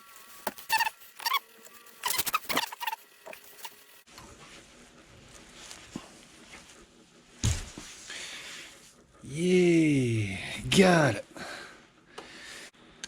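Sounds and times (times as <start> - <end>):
metal squeaking and scraping: 0.2 - 4.0.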